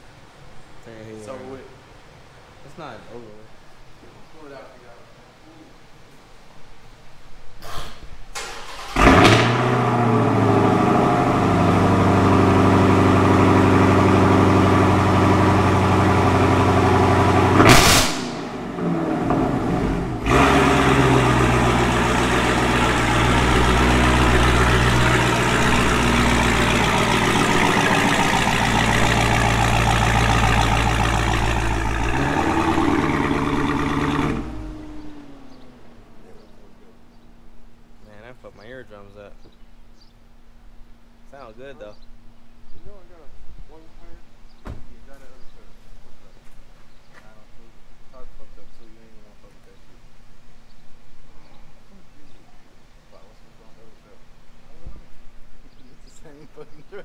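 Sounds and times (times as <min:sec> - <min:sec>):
car engine starting and idling: 0:08.3 - 0:37.9
engine revving: 0:08.4 - 0:36.6.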